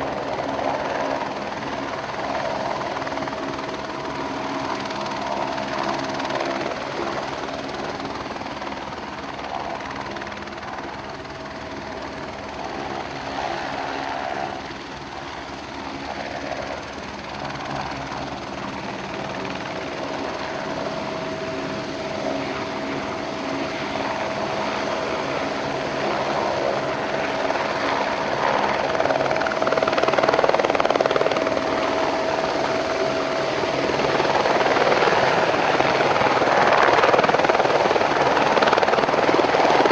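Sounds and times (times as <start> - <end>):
helicopter flying: 0.0 - 39.9.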